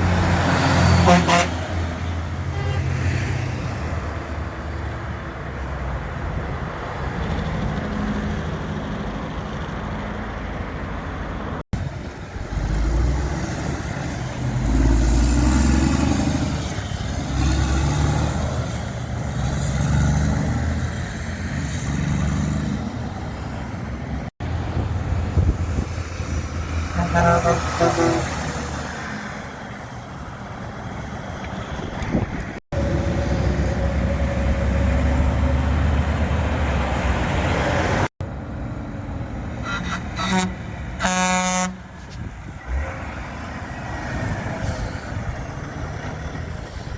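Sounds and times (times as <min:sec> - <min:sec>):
truck engines passing: 0:00.0 - 0:46.9
truck horn: 0:00.8 - 0:03.0, 0:26.8 - 0:28.6, 0:39.6 - 0:42.0.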